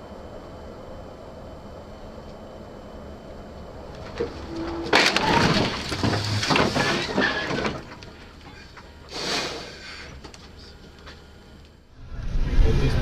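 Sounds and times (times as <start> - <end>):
vehicle collision crunching impact: 3.8 - 11.3.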